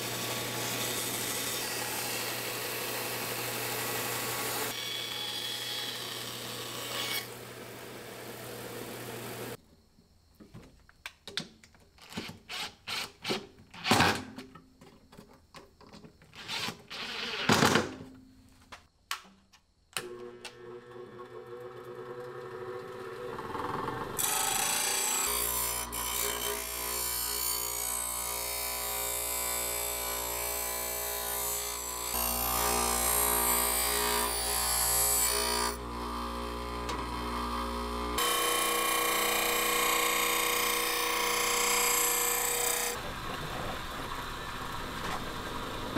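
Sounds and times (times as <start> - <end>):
small electric power tool running: 24.2 - 43.0.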